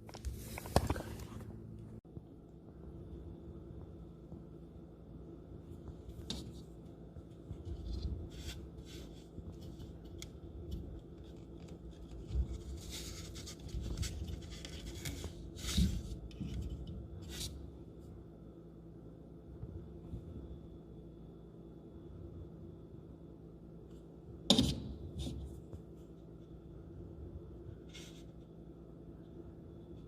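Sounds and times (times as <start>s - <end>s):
scraping and rubbing: 0.0s - 1.5s, 6.0s - 17.6s.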